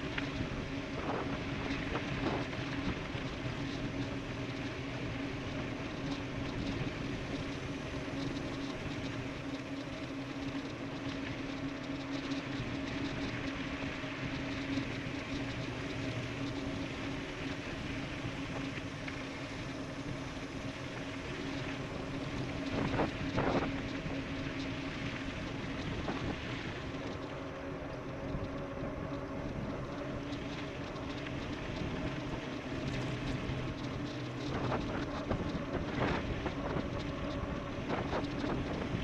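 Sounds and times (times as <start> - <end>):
steady hum: 0.0 - 39.0
wind rushing over microphone: 20.2 - 39.0.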